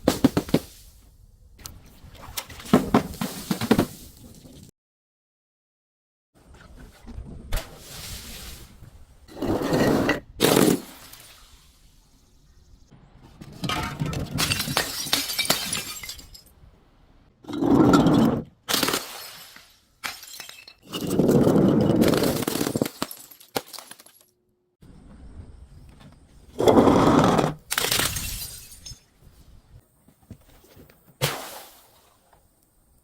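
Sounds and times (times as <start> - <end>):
glass bottles shattering: 13.6 - 16.6, 17.5 - 24.3, 27.7 - 29.1.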